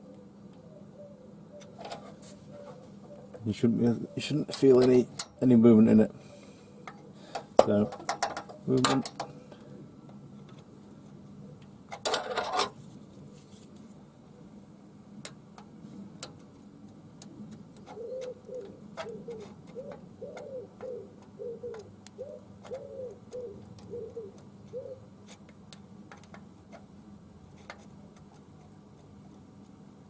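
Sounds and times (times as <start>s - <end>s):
bird cooing: 0.0s - 4.8s, 5.4s - 7.4s, 17.8s - 25.2s.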